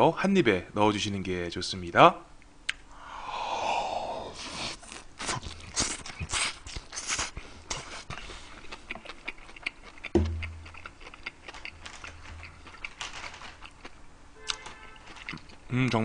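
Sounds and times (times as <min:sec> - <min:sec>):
open-mouthed chewing: 0:04.0 - 0:14.0, 0:15.0 - 0:16.0
sharp thump: 0:10.2 - 0:10.7.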